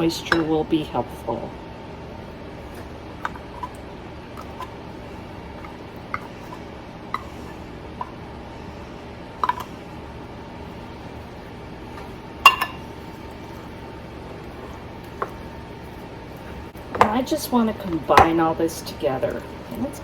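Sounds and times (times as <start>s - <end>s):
utensil clinking against bowl: 12.4s - 13.0s.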